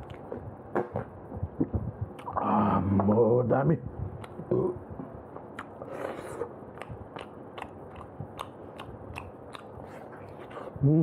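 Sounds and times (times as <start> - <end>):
wet chewing clicks: 6.7 - 10.4.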